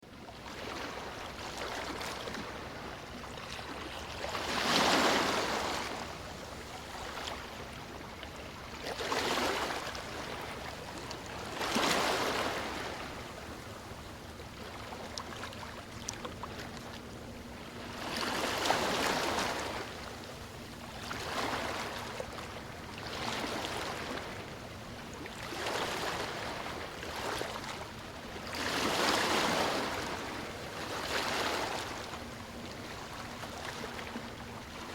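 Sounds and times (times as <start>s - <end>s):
steady wash of water: 0.4s - 34.9s
sea waves breaking on beach: 3.5s - 8.0s, 8.8s - 13.6s, 17.7s - 22.4s, 23.0s - 24.6s, 25.3s - 34.9s.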